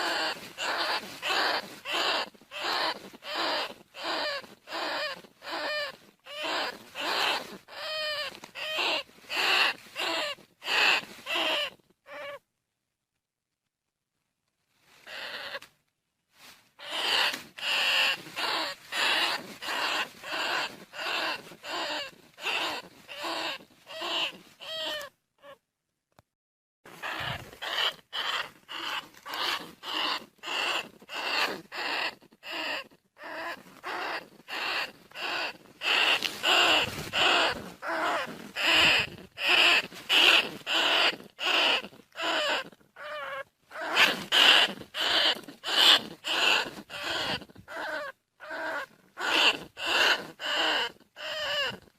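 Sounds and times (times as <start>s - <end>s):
rat short calls: 0.0s - 12.4s, 15.0s - 15.7s, 16.8s - 25.6s, 26.9s - 51.9s.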